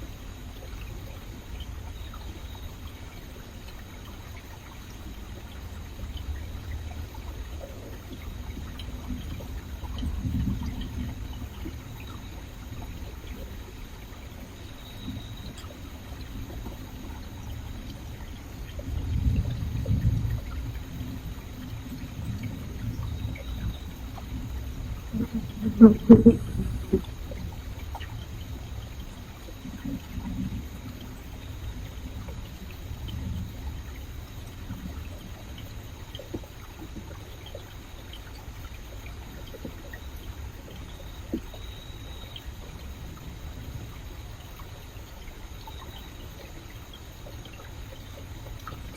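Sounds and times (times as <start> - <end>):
faint splashy ticks: 0.0 - 48.9
river water flowing: 0.0 - 48.9
stream running over rocks: 0.0 - 48.9.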